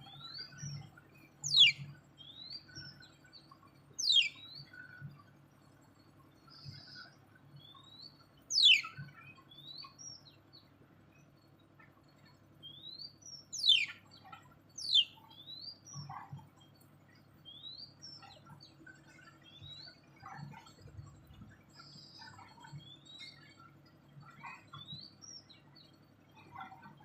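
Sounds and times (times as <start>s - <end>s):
birds chirping: 0.0s - 5.2s, 6.3s - 20.5s
bird calls sweeping downward: 1.5s - 1.9s, 8.5s - 9.0s, 13.6s - 14.0s.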